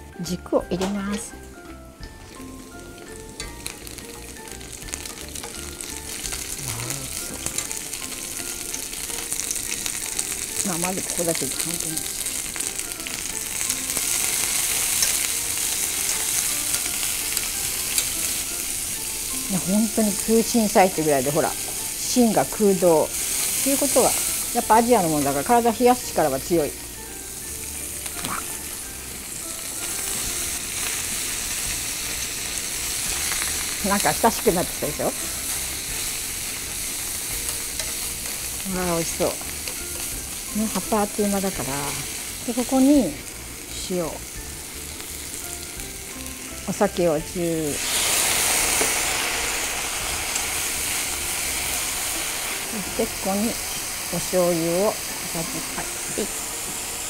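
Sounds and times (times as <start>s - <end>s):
vegetables sizzling in oil: 0.0s - 57.0s
chopsticks stirring in pan: 2.0s - 26.7s, 27.8s - 43.0s.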